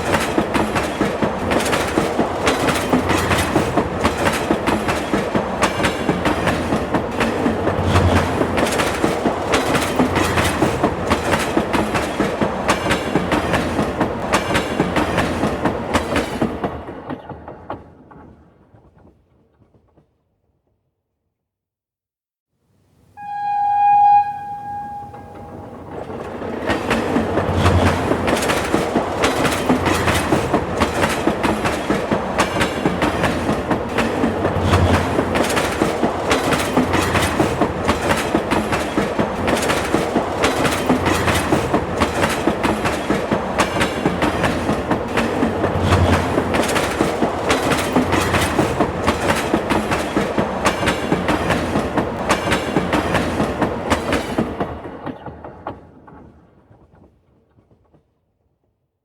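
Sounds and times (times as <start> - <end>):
train wheels clickety-clack: 0.0 - 20.2, 25.3 - 58.5
train horn: 23.2 - 25.9.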